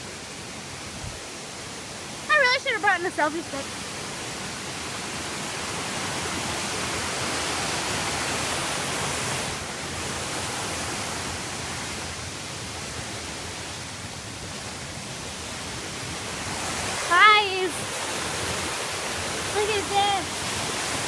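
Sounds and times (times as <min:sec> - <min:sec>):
creek rushing over rocks: 0:00.0 - 0:21.0.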